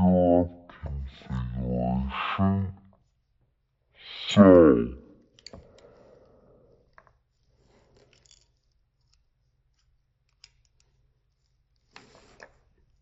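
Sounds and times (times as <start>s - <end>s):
faint clicks of model parts: 5.2s - 13.0s.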